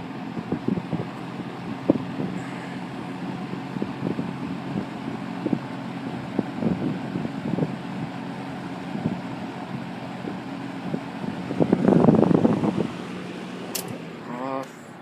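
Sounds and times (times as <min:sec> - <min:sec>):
air buffeting microphone: 0:00.0 - 0:15.0
electric fan running: 0:00.0 - 0:15.0
fan switch click: 0:13.7 - 0:14.0.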